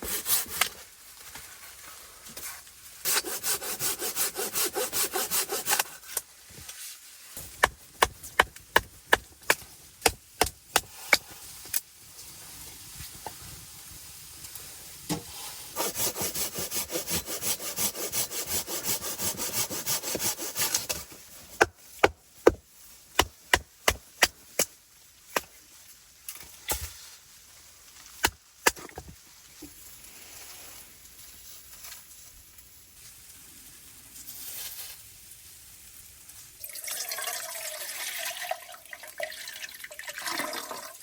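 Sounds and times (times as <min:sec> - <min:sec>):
hand saw cutting wood: 0:00.0 - 0:00.8, 0:03.0 - 0:06.2, 0:15.7 - 0:22.6.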